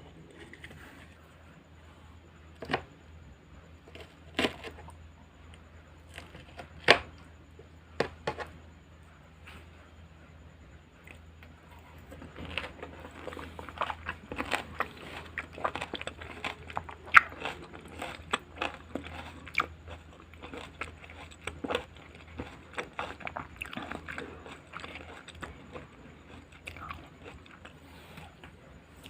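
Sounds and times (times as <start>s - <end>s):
chewing crunchy salad: 11.0s - 29.0s.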